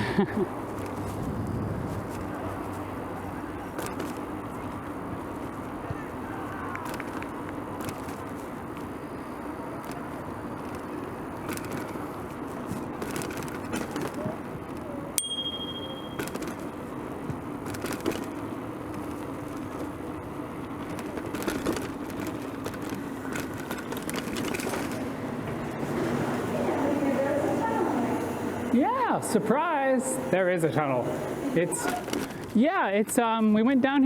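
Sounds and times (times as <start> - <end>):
bicycle tyre and wind rush: 0.0 - 15.1, 16.2 - 26.9
bicycle rattling clicks: 3.7 - 4.3, 6.7 - 9.0, 9.8 - 25.1
bicycle bell ringing: 15.2 - 16.4.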